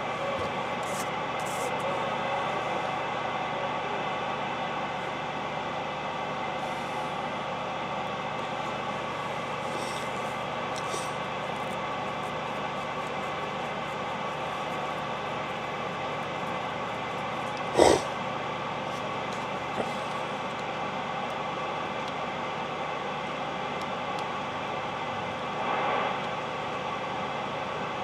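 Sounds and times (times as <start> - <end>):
radio static hiss: 8.4 - 17.0, 17.7 - 18.1.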